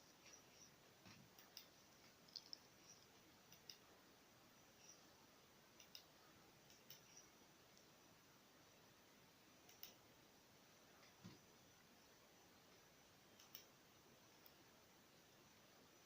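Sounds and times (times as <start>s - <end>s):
faint small clicks: 0.2s - 3.9s, 5.8s - 7.9s, 9.6s - 10.0s, 12.7s - 14.6s.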